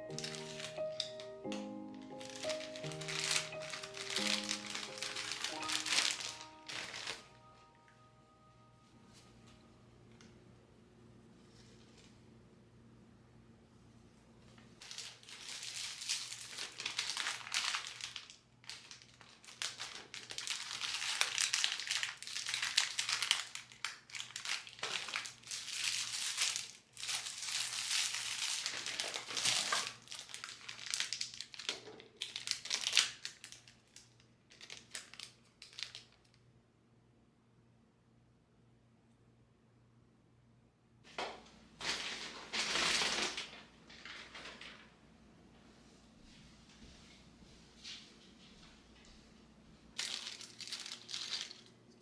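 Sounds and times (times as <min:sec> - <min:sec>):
crinkly material being crumpled: 0:00.0 - 0:08.0, 0:14.4 - 0:36.4, 0:41.7 - 0:45.0, 0:49.9 - 0:51.6.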